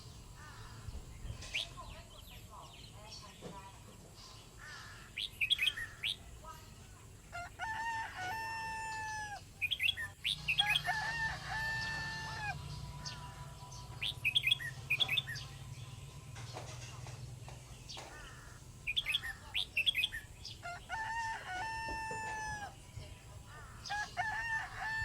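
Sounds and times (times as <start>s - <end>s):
long pitched bird calls: 4.5s - 6.3s, 7.3s - 15.6s, 17.8s - 22.8s.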